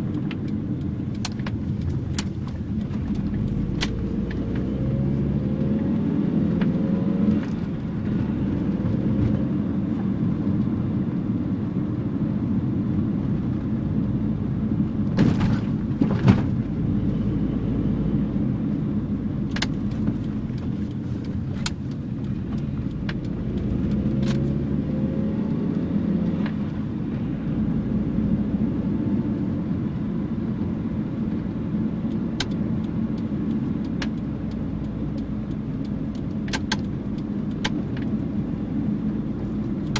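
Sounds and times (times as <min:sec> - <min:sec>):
car engine rumbling: 0:00.0 - 0:39.9
sharp clicks: 0:19.5 - 0:24.5, 0:32.1 - 0:38.2.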